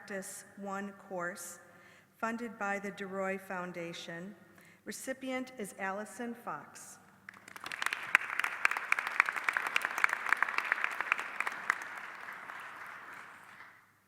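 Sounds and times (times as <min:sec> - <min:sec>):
audience applauding: 0:07.3 - 0:13.9.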